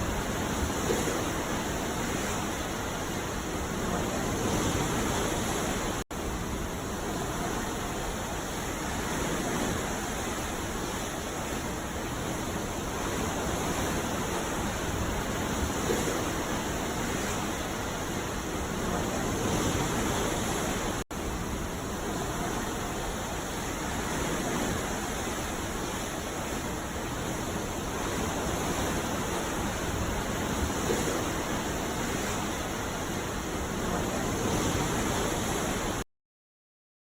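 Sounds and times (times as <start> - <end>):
ocean waves on a beach: 0.0 - 36.0.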